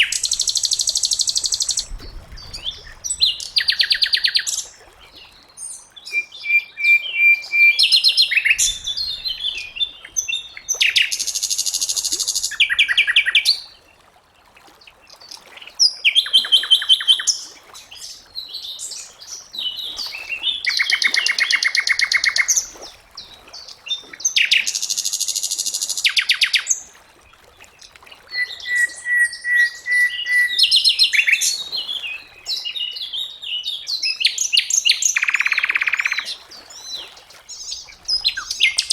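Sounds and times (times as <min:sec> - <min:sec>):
songbird trills and whistles: 0:28.3 - 0:32.8.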